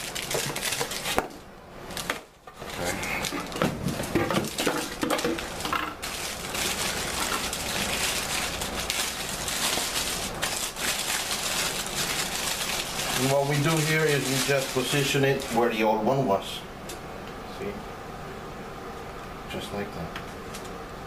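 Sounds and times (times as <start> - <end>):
cardboard and plastic tearing: 0.0 - 16.1
packaging rustling: 0.0 - 16.2.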